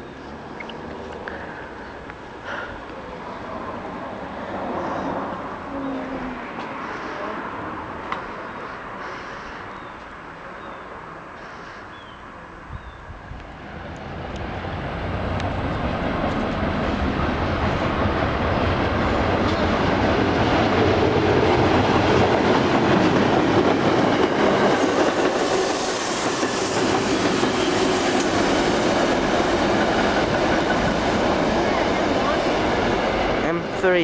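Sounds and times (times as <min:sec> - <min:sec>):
train wheels clattering: 0:16.3 - 0:34.0.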